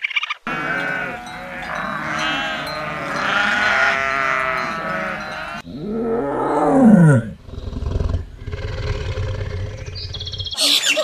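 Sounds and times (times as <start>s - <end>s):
sheep bleating: 0.5s - 5.7s.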